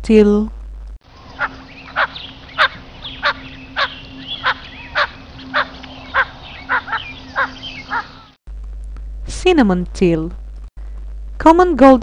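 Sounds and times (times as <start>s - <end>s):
faint steady hum: 0.0s - 12.0s
duck call notes: 1.4s - 8.2s.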